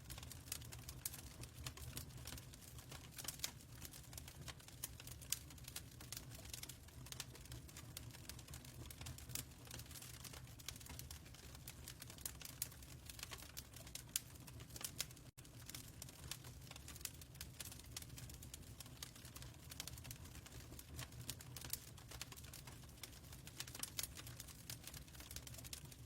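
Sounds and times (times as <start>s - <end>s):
faint fireplace crackling: 0.0s - 26.0s.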